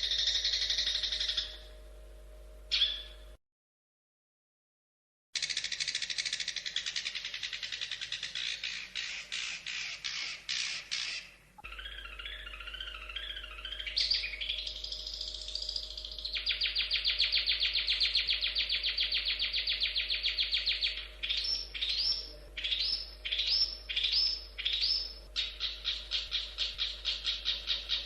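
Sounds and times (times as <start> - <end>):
shrike singing: 0.0 - 1.8, 8.4 - 28.0.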